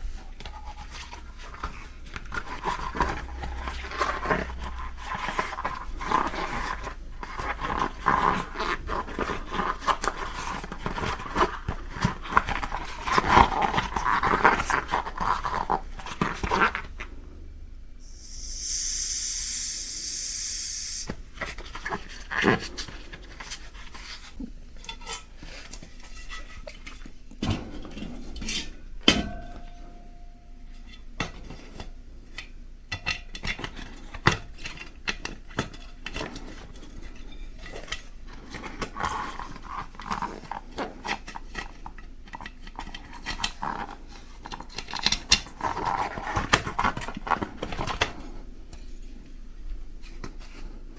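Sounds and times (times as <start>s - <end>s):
rubber tire rubbing and squeaking: 18.0s - 21.1s
steady air hiss: 18.0s - 21.4s.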